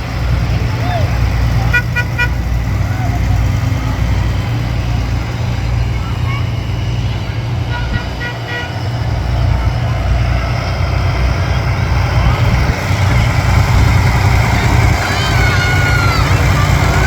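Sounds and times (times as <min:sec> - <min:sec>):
vehicles driving past: 0:00.0 - 0:17.0
horn toots: 0:01.5 - 0:03.9, 0:07.2 - 0:09.5.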